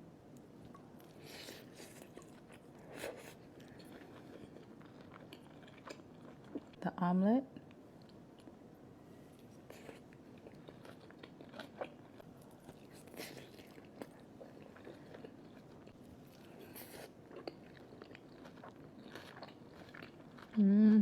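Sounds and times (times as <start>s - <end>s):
chewing and biting food: 9.7s - 20.6s.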